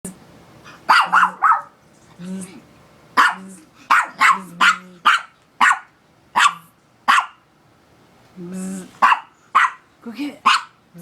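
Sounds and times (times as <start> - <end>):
dog barking sharply: 0.9 - 1.8, 3.2 - 7.4, 9.0 - 9.8, 10.4 - 10.8.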